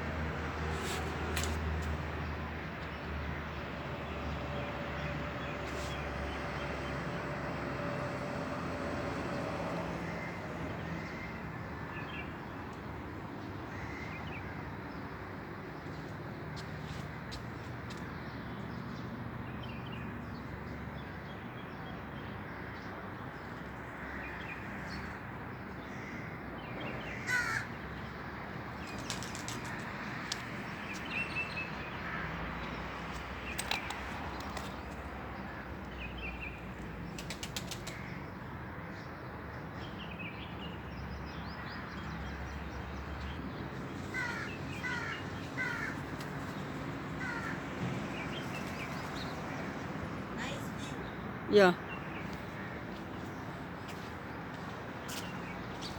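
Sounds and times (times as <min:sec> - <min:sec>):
birds calling: 0:24.0 - 0:38.3, 0:39.8 - 0:55.9.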